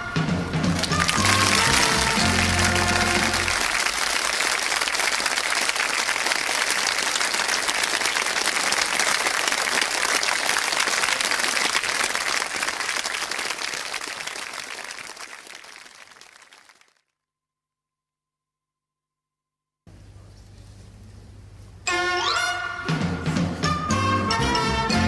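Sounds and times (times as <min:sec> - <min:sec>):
audience applauding: 0:00.0 - 0:17.1.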